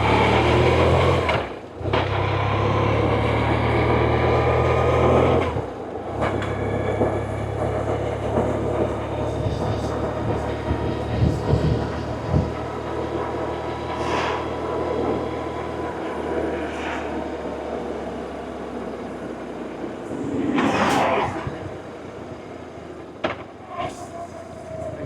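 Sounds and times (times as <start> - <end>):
wind rush: 5.6 - 24.2
loud rushing whoosh: 13.7 - 22.7.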